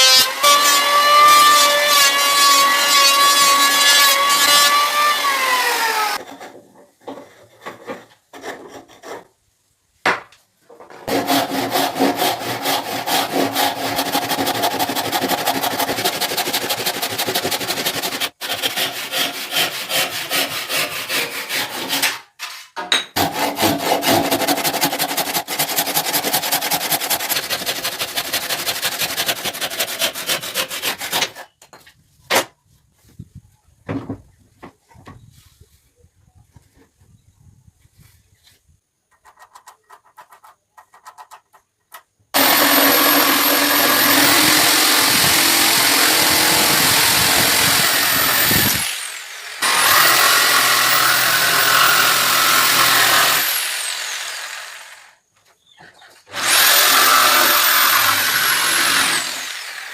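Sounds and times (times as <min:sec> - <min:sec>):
hand tool rasping wood: 0:11.1 - 0:22.2, 0:23.2 - 0:31.6, 0:42.4 - 0:54.4, 0:56.3 - 0:59.6.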